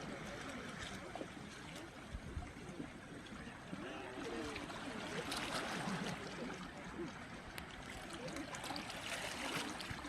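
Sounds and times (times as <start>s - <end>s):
faint distant voices: 0.0s - 10.0s
water washing along shore: 4.0s - 10.0s.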